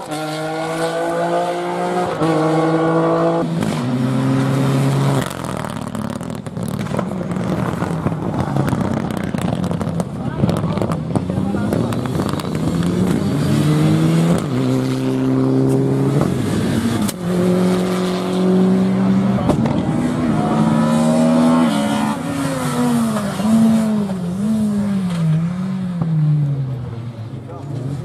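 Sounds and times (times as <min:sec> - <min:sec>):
rally car engine accelerating: 0:00.0 - 0:28.0.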